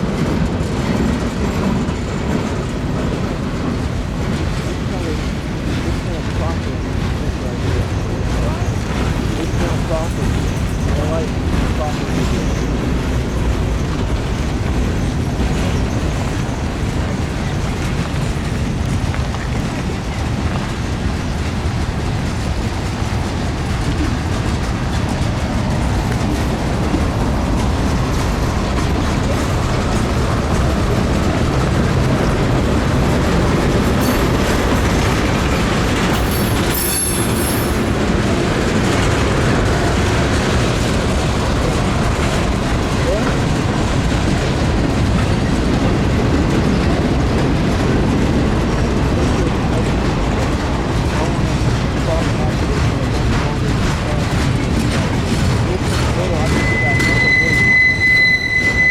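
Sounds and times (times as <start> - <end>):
freight train wheels rumbling: 0.0 - 58.9
high wheel squeal: 36.2 - 38.0, 55.8 - 58.9.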